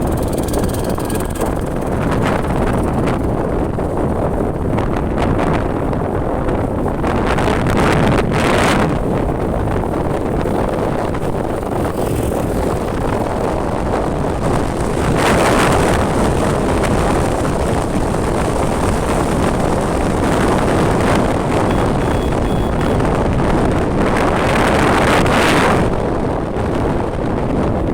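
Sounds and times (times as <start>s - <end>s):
motorcycle engine: 0.0s - 6.9s, 8.9s - 24.8s
wind buffeting microphone: 0.0s - 27.9s.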